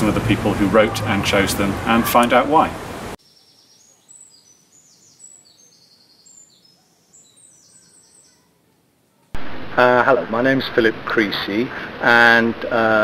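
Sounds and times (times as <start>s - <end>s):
small birds chirping: 3.2s - 9.3s.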